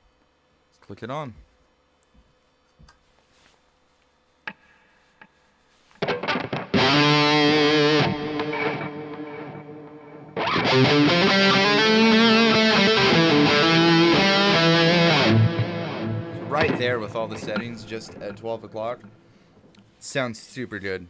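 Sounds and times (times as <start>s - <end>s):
distorted electric guitar: 6.0s - 19.5s.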